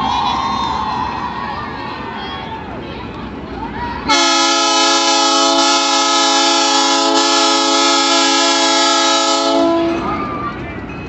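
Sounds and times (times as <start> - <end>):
train horn blast: 4.1 - 10.2.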